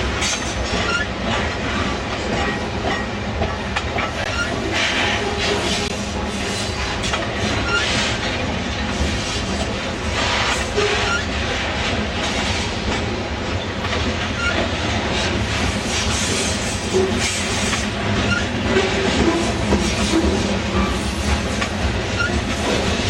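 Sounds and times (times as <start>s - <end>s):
freight train wheels rumbling on rails: 0.0s - 23.0s
wheel squeals: 4.2s - 4.6s, 7.6s - 8.0s, 10.8s - 11.3s, 14.4s - 14.6s, 22.1s - 22.4s.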